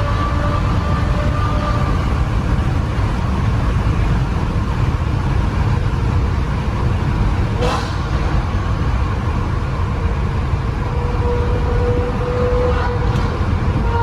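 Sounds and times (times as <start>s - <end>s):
car exhaust deep rumble: 0.0s - 14.0s
short sharp sound: 7.6s - 8.8s.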